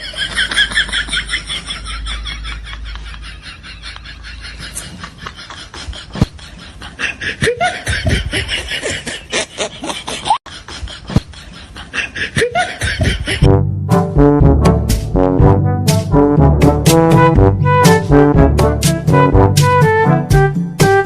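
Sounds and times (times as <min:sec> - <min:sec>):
people laughing and snickering: 0:00.0 - 0:13.5.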